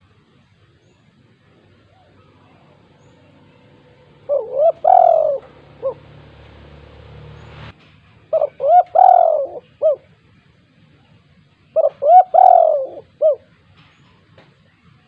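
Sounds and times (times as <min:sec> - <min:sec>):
dove cooing: 0:01.6 - 0:06.8, 0:08.3 - 0:10.1, 0:11.8 - 0:13.5.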